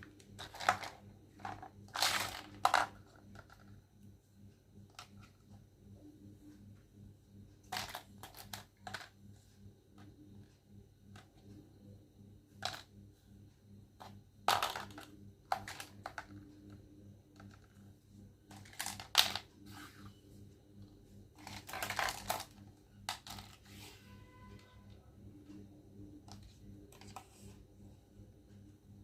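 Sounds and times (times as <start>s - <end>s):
faint low hum: 0.0s - 29.0s
plastic toy clicks and rustles: 0.3s - 3.6s, 14.5s - 16.4s, 18.5s - 19.5s, 21.4s - 23.6s.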